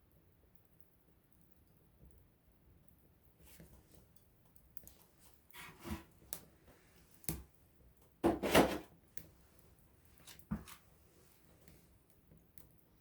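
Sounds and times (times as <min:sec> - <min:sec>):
campfire wood crackling: 0:02.8 - 0:13.0.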